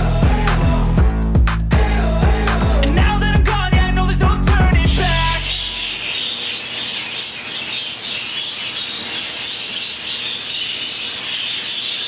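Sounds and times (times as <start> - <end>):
budgerigars chirping: 5.0 - 12.0.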